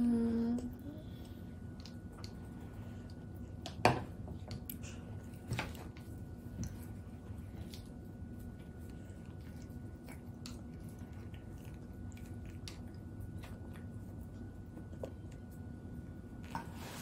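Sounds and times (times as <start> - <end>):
low room hum: 0.0 - 17.0
baby chewing food: 4.2 - 17.0.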